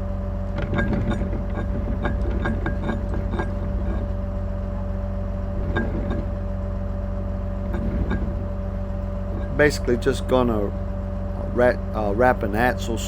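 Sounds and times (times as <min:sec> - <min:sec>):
constant whine: 0:00.0 - 0:13.0
truck engine idling: 0:00.0 - 0:13.0
metal gear clinking and knocking: 0:00.6 - 0:04.2, 0:05.5 - 0:06.4, 0:07.6 - 0:08.5, 0:09.2 - 0:10.3.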